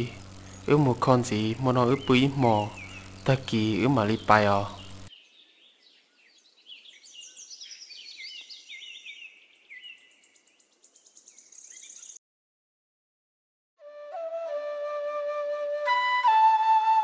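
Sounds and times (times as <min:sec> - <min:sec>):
birds chirping and twittering: 0:00.0 - 0:12.2.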